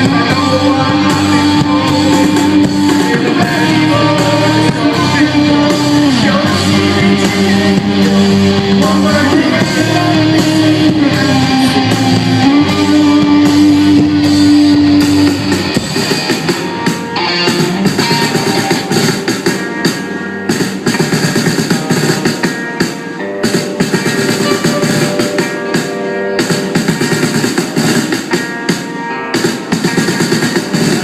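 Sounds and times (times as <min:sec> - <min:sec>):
instrumental rock music: 0:00.0 - 0:31.0.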